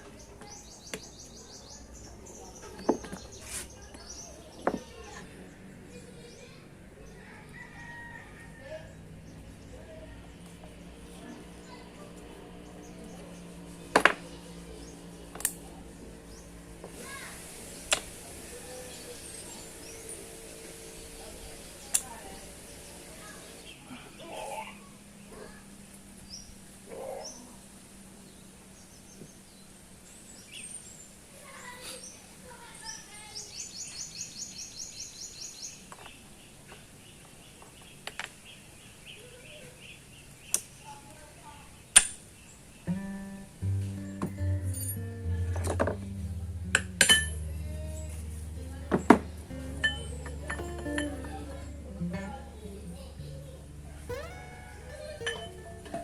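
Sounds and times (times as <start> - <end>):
steady low hum: 42.9 - 56.0.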